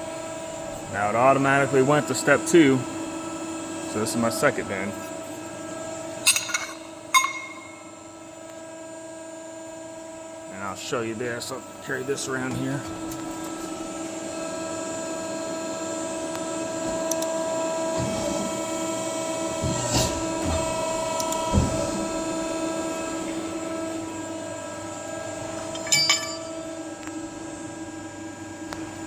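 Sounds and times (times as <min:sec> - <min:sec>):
motor humming: 0:10.6 - 0:27.8.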